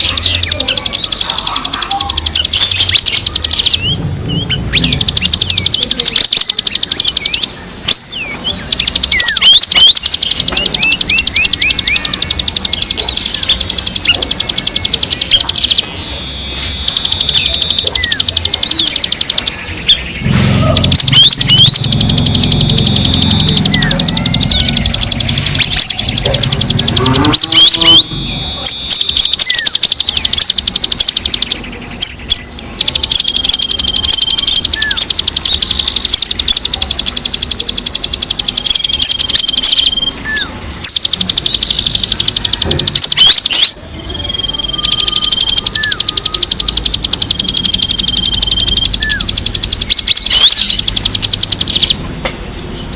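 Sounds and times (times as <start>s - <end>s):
songbirds chirping: 0.0s - 52.9s
upward-slurred whistles: 20.2s - 30.5s, 37.2s - 52.0s.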